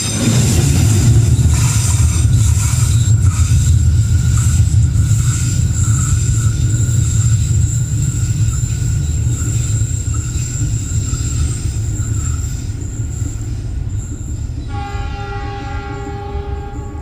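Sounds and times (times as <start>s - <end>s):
freight train wagons rumbling: 0.0s - 17.0s
wheels squealing against rails: 0.0s - 17.0s
train horn: 14.7s - 17.0s.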